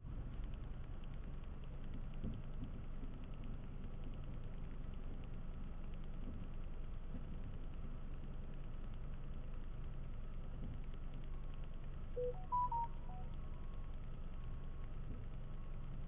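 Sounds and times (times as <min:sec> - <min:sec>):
short electronic chime: 0:12.2 - 0:13.2.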